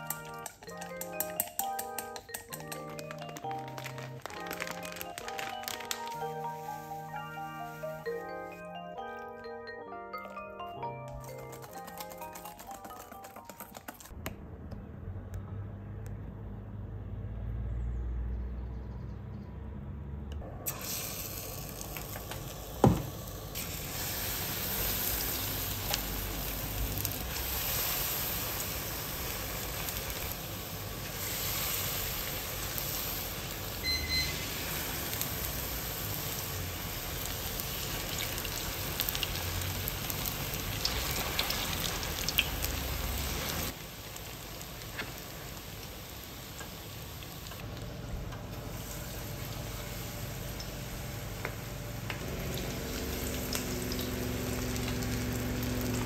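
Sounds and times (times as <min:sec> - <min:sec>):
food deep-frying in oil: 0:20.7 - 0:56.0.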